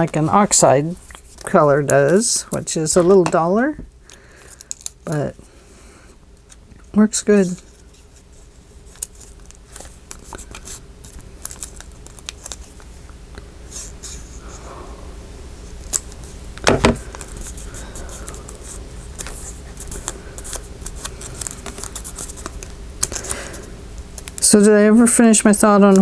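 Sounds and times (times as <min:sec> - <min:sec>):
paper rustling and clicks: 0:08.9 - 0:12.9, 0:19.1 - 0:23.5
knock on work table: 0:16.6 - 0:17.0.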